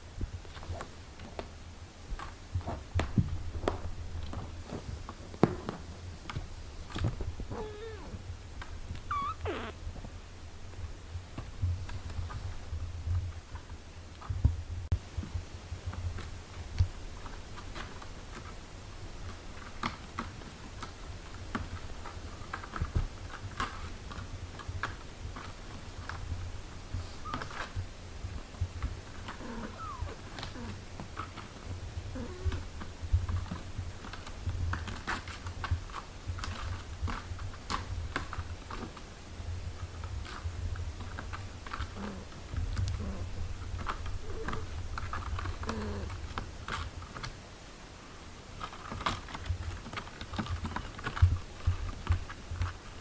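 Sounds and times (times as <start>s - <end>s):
small clicks and rustles: 0.0s - 53.0s
cat purring: 3.4s - 10.2s, 24.8s - 34.2s, 39.8s - 47.2s
kittens squeaking: 7.5s - 8.2s, 9.0s - 9.8s, 27.1s - 27.6s, 29.4s - 30.8s.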